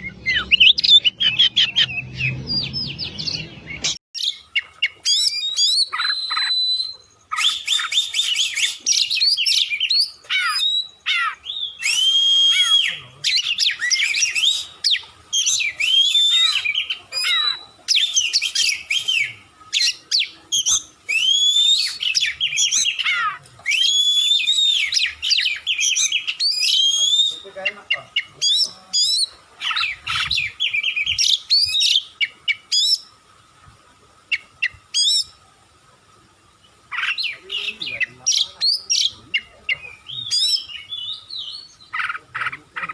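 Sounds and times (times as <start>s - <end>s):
songbird singing whistled phrases: 0.0s - 33.1s, 36.9s - 42.2s.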